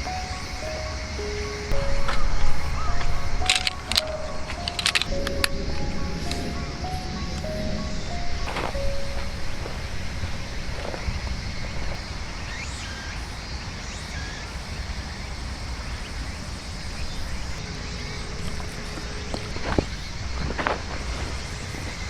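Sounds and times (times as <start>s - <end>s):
faint high chirps: 0.0s - 14.5s.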